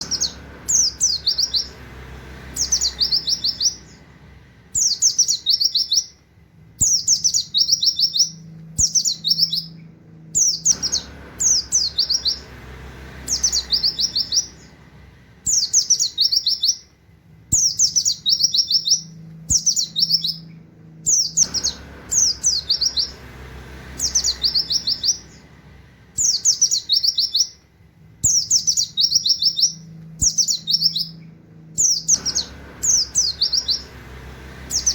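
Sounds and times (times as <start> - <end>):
bird singing high wit notes: 0.0 - 1.8, 2.5 - 4.1, 4.7 - 6.2, 6.8 - 12.5, 13.2 - 14.8, 15.4 - 16.9, 17.5 - 23.3, 24.0 - 25.6, 26.2 - 27.6, 28.2 - 34.0.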